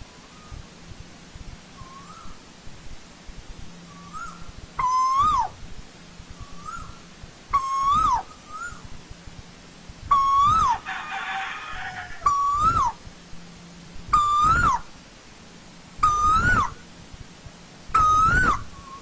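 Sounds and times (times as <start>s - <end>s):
koel calling: 4.0s - 5.6s, 7.6s - 8.8s, 10.1s - 13.0s.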